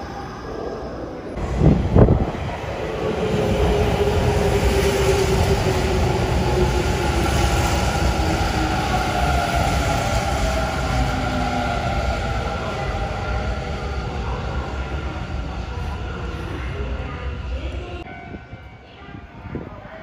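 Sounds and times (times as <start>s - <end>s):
train wheel on rail noise: 1.3s - 18.1s.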